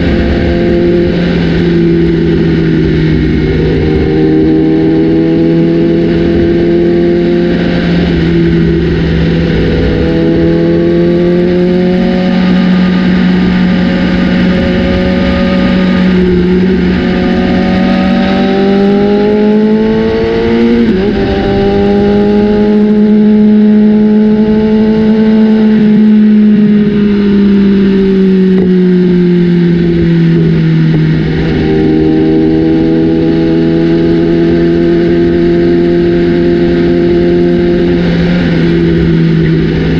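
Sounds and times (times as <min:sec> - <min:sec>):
motorcycle engine revving loud: 0:00.0 - 0:39.9.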